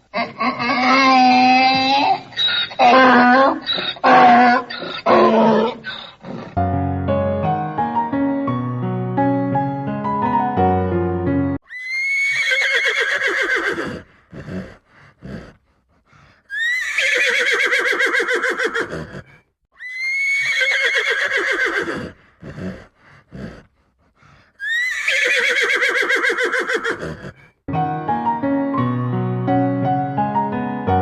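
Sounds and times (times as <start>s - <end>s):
horse neighing: 0.1s - 6.6s, 11.7s - 15.6s, 16.5s - 23.7s, 24.6s - 27.5s.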